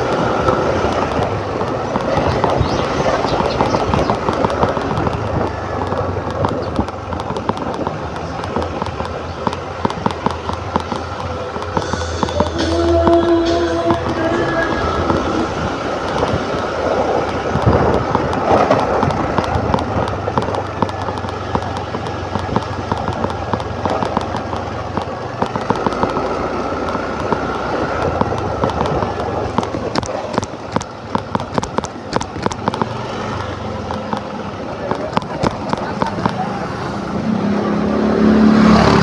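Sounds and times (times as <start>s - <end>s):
sharp crackling pops: 0.0s - 13.2s, 15.0s - 36.4s
scooter engine hum: 0.0s - 39.0s
rushing air: 9.7s - 20.8s.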